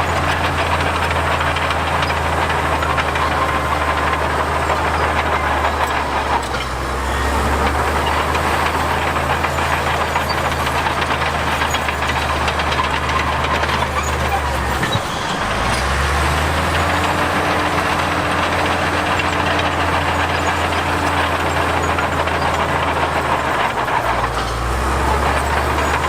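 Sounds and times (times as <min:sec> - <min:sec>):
heavy diesel engine running: 0:00.0 - 0:26.0.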